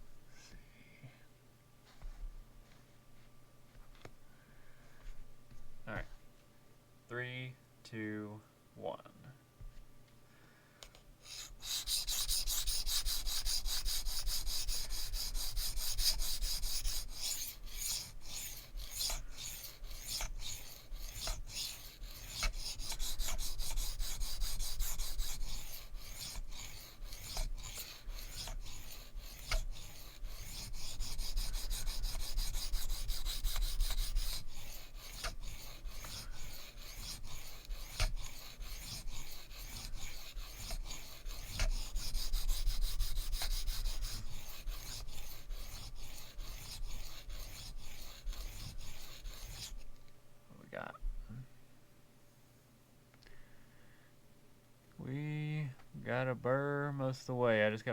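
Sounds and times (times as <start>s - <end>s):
knife scraping on sharpening stone: 11.3s - 49.8s.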